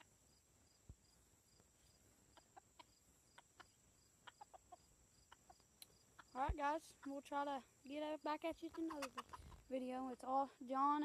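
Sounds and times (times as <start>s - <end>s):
crickets chirping: 0.0s - 11.0s
chickens clucking: 2.2s - 7.4s, 8.5s - 9.7s.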